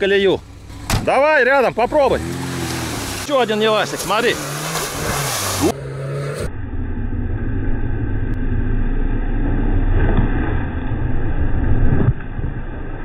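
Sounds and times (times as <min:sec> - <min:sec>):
wheels flinging mud: 0:00.6 - 0:06.4.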